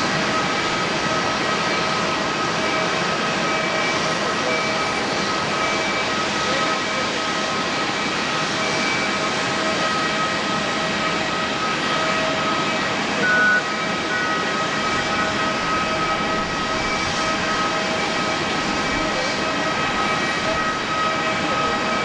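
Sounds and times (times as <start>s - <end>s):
jet engines whining: 0.0s - 22.0s
brief louder tone: 13.2s - 17.4s.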